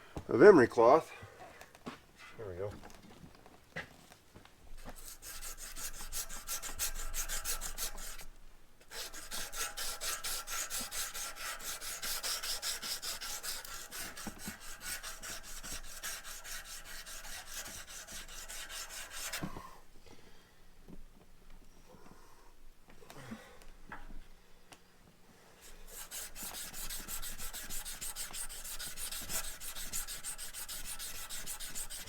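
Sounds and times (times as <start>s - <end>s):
emery cloth rubbing on steel: 4.8s - 8.3s, 8.9s - 19.5s, 25.6s - 32.0s.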